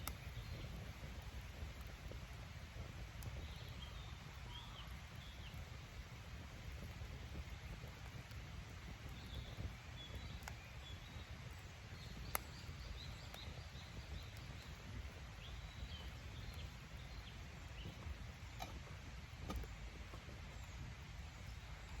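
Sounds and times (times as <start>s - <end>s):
campfire crackling: 0.0s - 22.0s
low outdoor rumble: 0.0s - 22.0s
small birds chirping: 0.0s - 22.0s.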